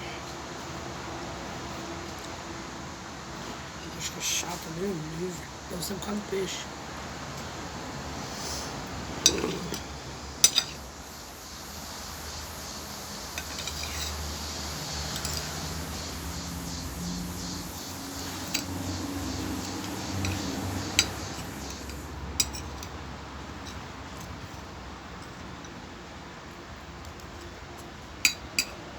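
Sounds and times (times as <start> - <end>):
cutlery clinking on plate: 9.2 - 10.8, 19.6 - 23.0, 28.2 - 28.8.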